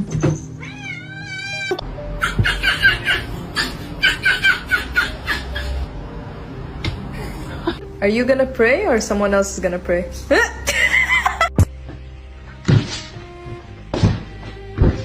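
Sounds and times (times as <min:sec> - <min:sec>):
cat meowing: 0:00.6 - 0:01.8.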